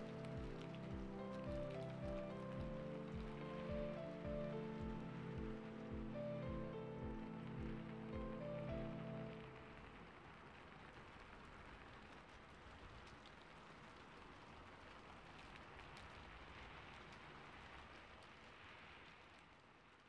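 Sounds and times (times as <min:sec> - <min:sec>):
faint steady rain: 0:00.0 - 0:20.0.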